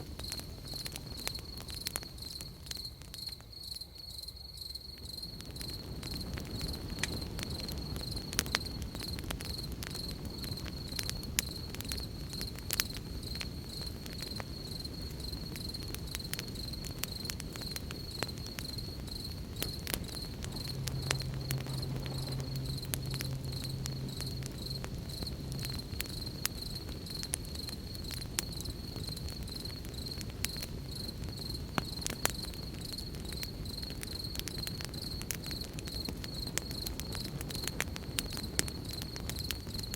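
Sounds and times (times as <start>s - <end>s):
campfire crackling and popping: 0.0s - 39.9s
crickets chirping: 0.0s - 39.9s
low steady hum: 18.2s - 29.0s.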